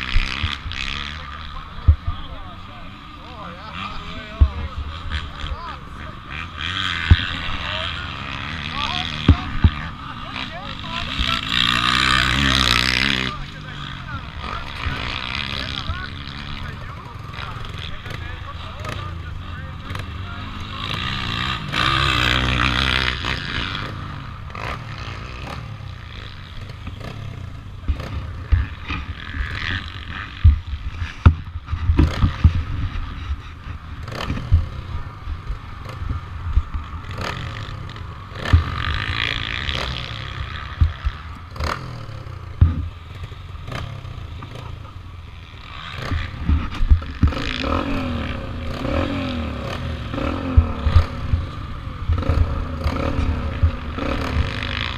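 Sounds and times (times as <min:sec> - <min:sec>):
motorcycle engine revving: 0:00.0 - 0:54.9
bike knocks and rattles: 0:42.5 - 0:42.9.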